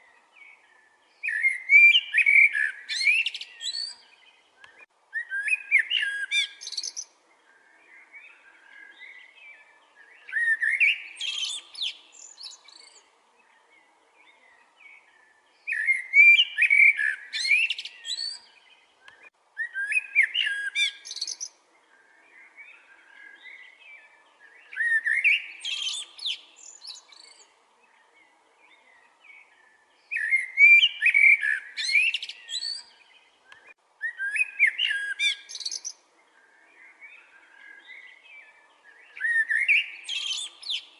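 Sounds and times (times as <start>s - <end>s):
soft bird chirps: 0.0s - 40.9s
songbird whistled phrase: 1.2s - 7.0s, 15.7s - 21.5s, 30.1s - 32.9s, 33.5s - 35.9s, 39.1s - 40.9s.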